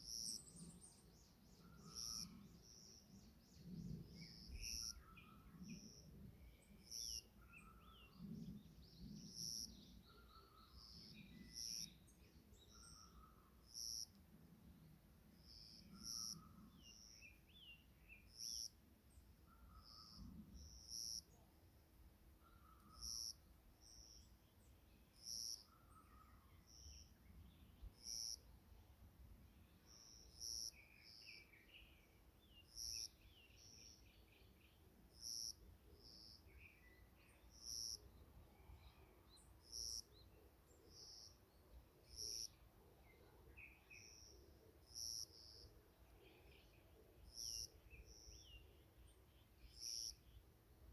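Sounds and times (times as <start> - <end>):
birds chirping and twittering: 0.0 - 14.1.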